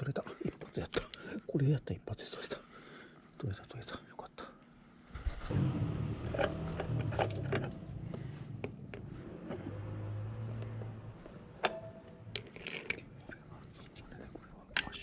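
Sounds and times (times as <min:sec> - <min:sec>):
metal parts clinking and scraping: 0:11.6 - 0:13.2.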